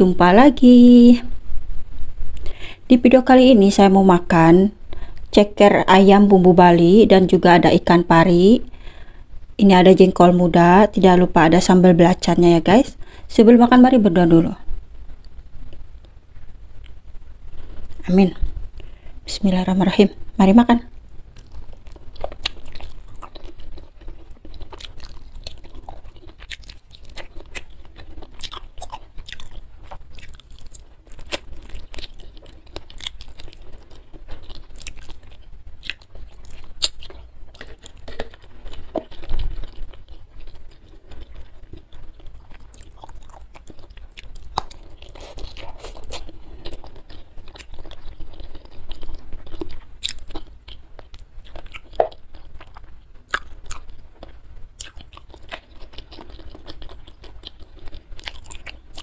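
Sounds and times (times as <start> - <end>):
wet chewing and biting: 21.3 - 59.0.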